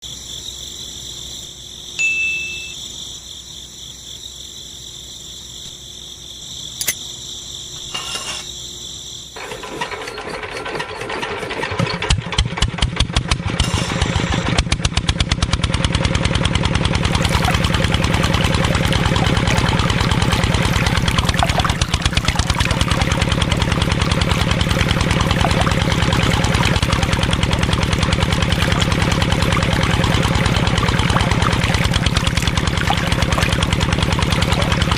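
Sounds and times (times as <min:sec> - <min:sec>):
short beep: 0:02.0 - 0:02.8
diesel engine starting and running: 0:09.2 - 0:34.9.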